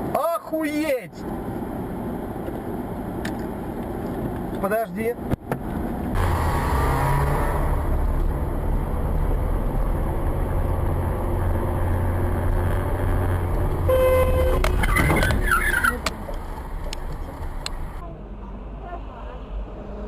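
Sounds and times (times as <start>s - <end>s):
car engine and road noise: 0.0s - 20.0s
car horn: 13.8s - 16.0s.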